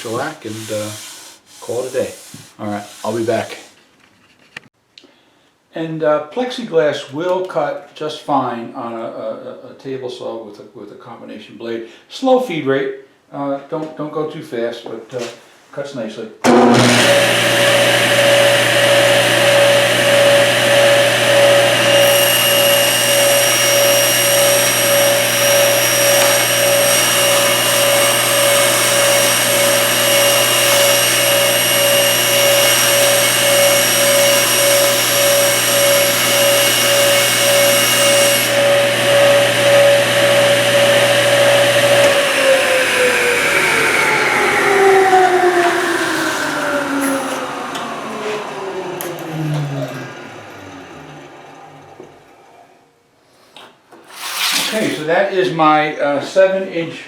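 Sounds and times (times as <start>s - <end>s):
saw blade spinning down: 0.0s - 3.7s, 16.5s - 52.2s, 54.1s - 55.2s
table saw running: 0.0s - 3.7s, 16.5s - 52.3s
saw blade whining through plastic: 0.0s - 3.8s, 16.5s - 50.0s, 53.5s - 55.1s.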